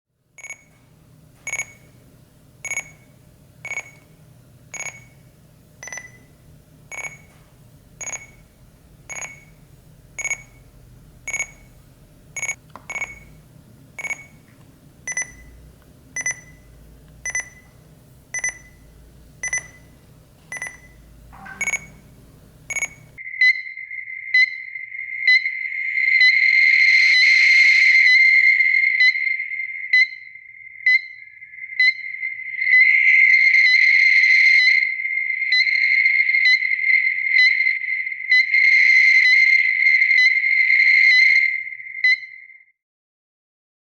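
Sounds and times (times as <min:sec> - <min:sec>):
short high beeps: 0:05.8 - 0:07.4, 0:08.0 - 0:08.5, 0:09.1 - 0:10.7, 0:11.3 - 0:11.8, 0:12.4 - 0:13.4, 0:14.0 - 0:14.4, 0:15.1 - 0:15.6, 0:16.2 - 0:23.2.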